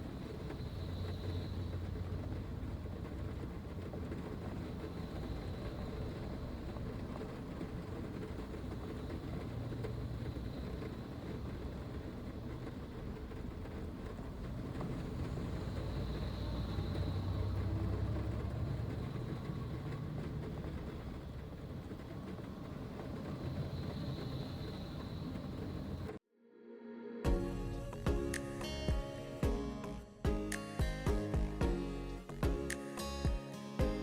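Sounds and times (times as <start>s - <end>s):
vehicle rumbling: 0.0s - 26.2s.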